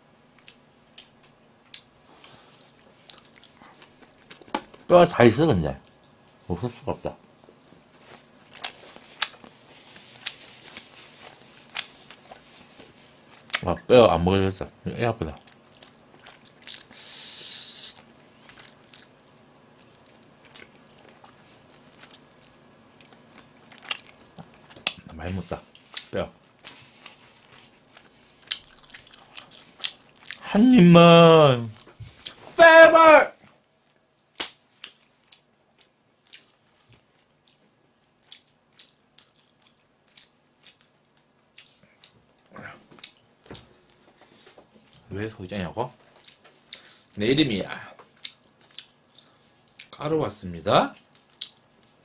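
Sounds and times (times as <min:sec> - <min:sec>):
person chewing: 0:00.4 - 0:04.6, 0:08.0 - 0:13.6, 0:15.4 - 0:25.1, 0:25.7 - 0:30.4, 0:34.4 - 0:37.6, 0:38.2 - 0:43.2, 0:48.1 - 0:49.9, 0:51.0 - 0:51.6.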